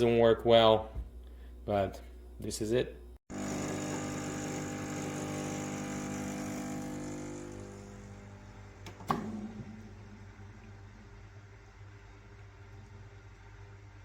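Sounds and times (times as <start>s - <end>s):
espresso machine pump humming: 3.3s - 14.0s.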